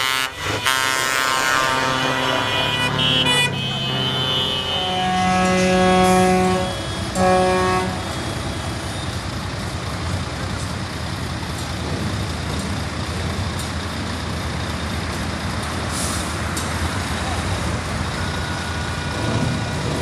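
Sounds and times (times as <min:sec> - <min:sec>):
truck horn blasts: 0:00.0 - 0:09.3
truck engines and traffic rumbling: 0:00.0 - 0:20.0.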